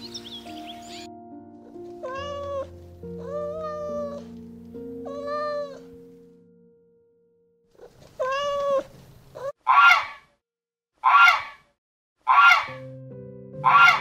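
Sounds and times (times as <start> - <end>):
kitten meowing: 2.0 - 4.3, 5.0 - 5.9, 8.2 - 10.2
goose honking: 12.3 - 12.8, 13.6 - 14.0.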